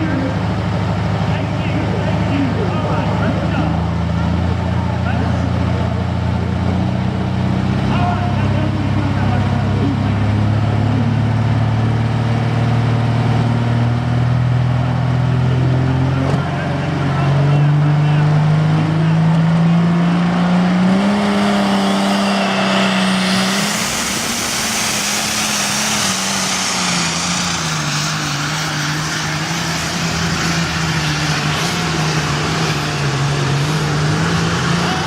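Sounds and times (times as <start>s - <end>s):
truck engine running hard: 0.0s - 35.0s
loud rushing noise: 18.5s - 35.0s.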